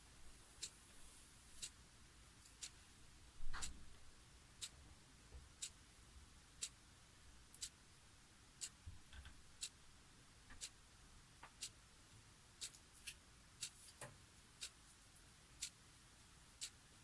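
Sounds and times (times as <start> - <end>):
clock ticking: 5.5 - 5.8, 7.5 - 7.8, 8.6 - 8.8, 9.6 - 9.8, 10.5 - 10.8, 11.5 - 11.8, 12.6 - 12.9, 14.6 - 14.8, 16.6 - 16.8.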